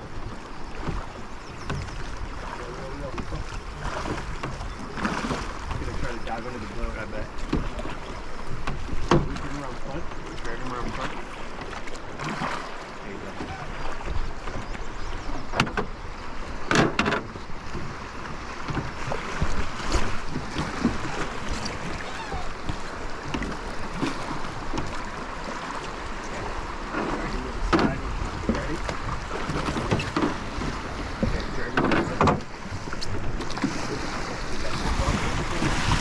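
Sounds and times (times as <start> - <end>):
river water rushing: 0.0 - 16.6, 17.3 - 36.0
wind buffeting microphone: 26.4 - 36.0.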